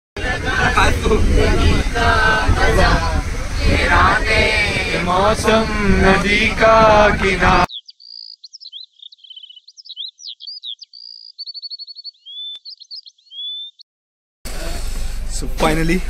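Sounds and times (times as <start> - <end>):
people shouting and singing: 0.2 - 7.7
birdsong: 7.6 - 13.8.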